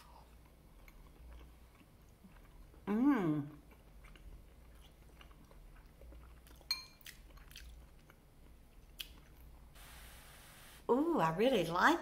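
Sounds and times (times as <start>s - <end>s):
person chewing food: 0.0s - 9.8s
metal fork clinking on dish: 6.7s - 7.0s.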